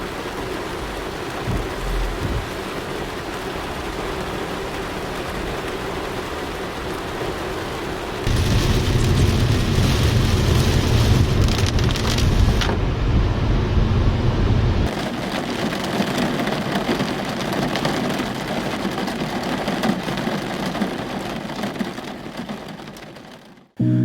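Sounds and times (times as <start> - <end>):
steady rain: 0.0 - 23.8
heavy low rumble: 8.3 - 14.9.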